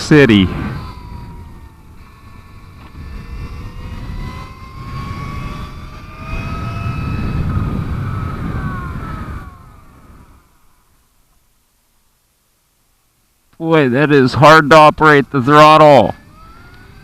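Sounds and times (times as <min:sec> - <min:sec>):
electric motorcycle motor whining: 0:00.0 - 0:11.7, 0:13.8 - 0:17.0
wind and tyre rumble: 0:00.0 - 0:11.7.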